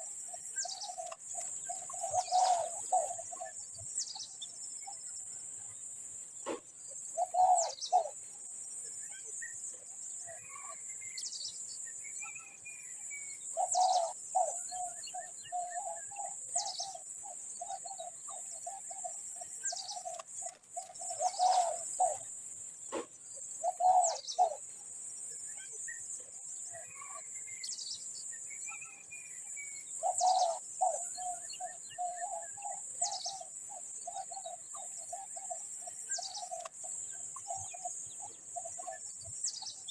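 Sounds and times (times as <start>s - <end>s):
steady high-pitched hiss: 0.0s - 39.9s
bird high falling calls: 20.8s - 22.3s.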